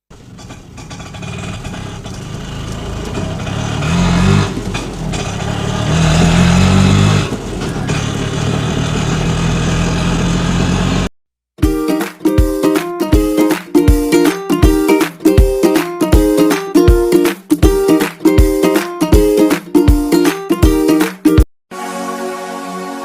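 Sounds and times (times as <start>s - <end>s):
vehicle engine revving: 0.1s - 11.1s.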